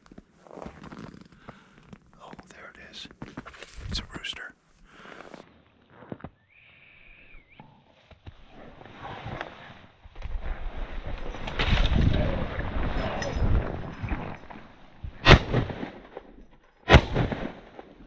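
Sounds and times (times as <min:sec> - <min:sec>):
shotgun shots: 0:15.2 - 0:16.0, 0:16.9 - 0:17.7.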